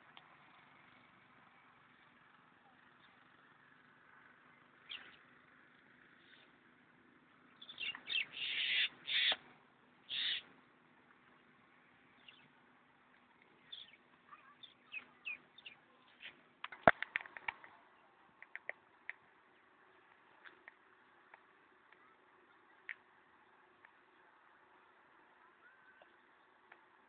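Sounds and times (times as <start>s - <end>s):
birds calling harshly: 7.6s - 9.4s, 10.1s - 10.5s, 13.6s - 16.3s
downward-sliding bird chirps: 10.1s - 10.4s.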